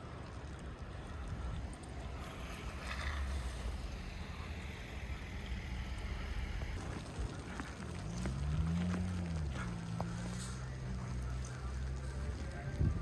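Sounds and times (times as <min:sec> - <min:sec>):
wind and snow hiss: 0:00.0 - 0:09.1
vehicle engine rumbling: 0:00.0 - 0:13.0.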